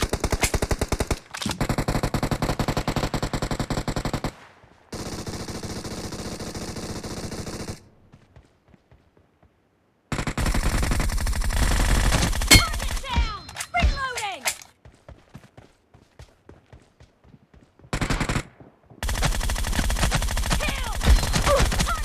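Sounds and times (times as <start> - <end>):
automatic gunfire bursts: 10.1 - 13.2, 17.9 - 22.0.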